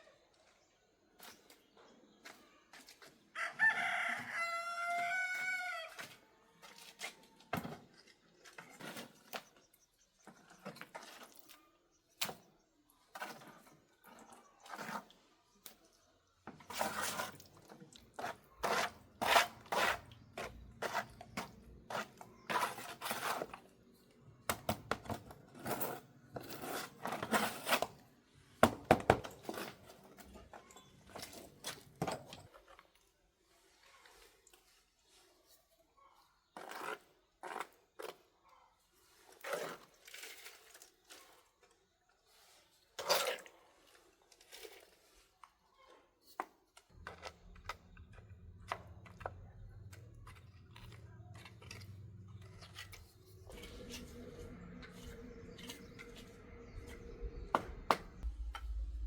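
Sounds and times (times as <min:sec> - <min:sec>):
rooster crowing: 0:03.4 - 0:05.9.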